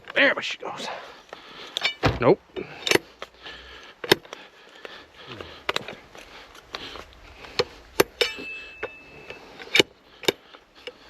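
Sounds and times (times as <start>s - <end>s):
sharp knocks and clinks: 1.7s - 2.2s, 8.0s - 10.4s
thin high tone: 8.2s - 9.6s.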